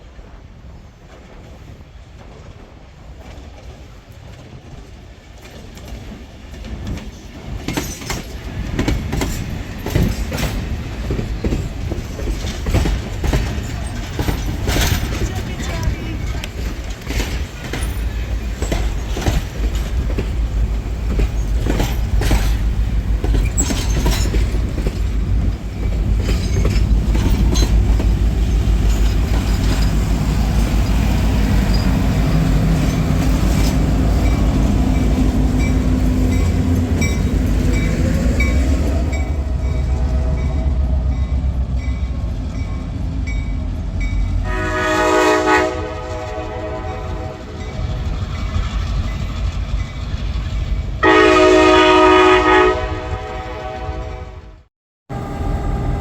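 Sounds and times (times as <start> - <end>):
train rumbling on rails: 0.0 - 56.0
wheels clicking over rail joints: 2.1 - 39.4
train horn blast: 39.4 - 41.1, 44.4 - 47.6, 51.0 - 56.0.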